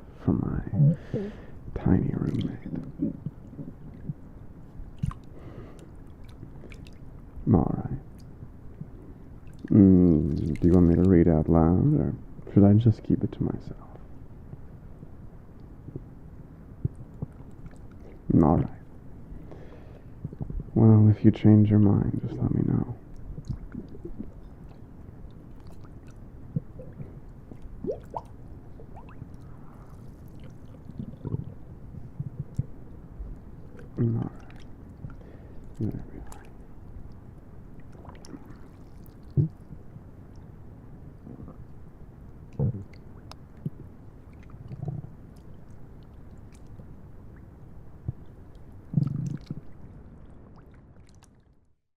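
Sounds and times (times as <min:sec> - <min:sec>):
stomach gurgling: 0:00.6 - 0:07.4, 0:08.1 - 0:11.2, 0:15.6 - 0:18.8, 0:19.7 - 0:20.8, 0:22.8 - 0:40.5, 0:41.2 - 0:47.4, 0:48.0 - 0:51.7.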